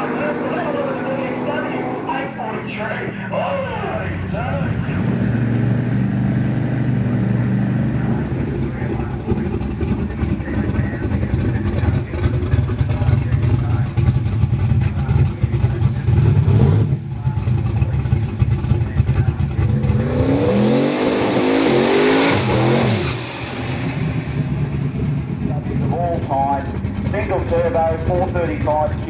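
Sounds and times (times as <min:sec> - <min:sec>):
drag car engine accelerating: 0:00.0 - 0:29.0.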